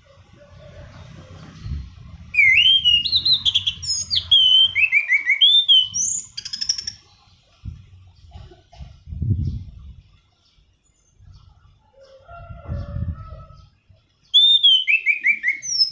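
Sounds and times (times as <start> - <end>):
low rumbling background noise: 0.0 - 4.9
thrush singing whistled phrases: 2.3 - 7.0, 14.3 - 15.9.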